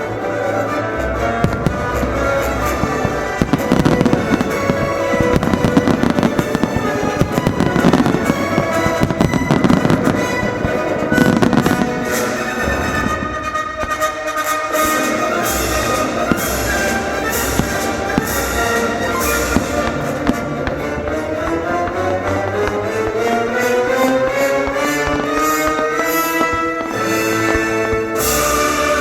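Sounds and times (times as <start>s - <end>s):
christmas music: 0.0s - 29.0s
fireworks bursting and crackling: 0.0s - 29.0s.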